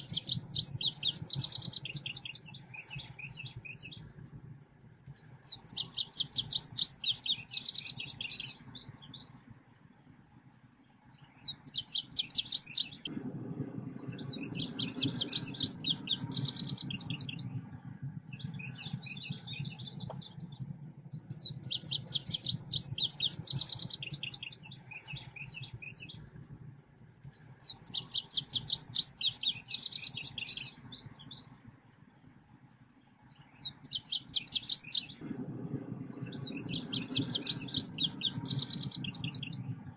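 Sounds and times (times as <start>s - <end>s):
bird trilling chirps: 0.0s - 4.0s, 5.1s - 9.3s, 11.1s - 13.1s, 14.0s - 17.6s, 18.3s - 26.2s, 27.3s - 31.6s, 33.2s - 35.2s, 36.1s - 39.7s
faint low hum: 0.0s - 39.9s.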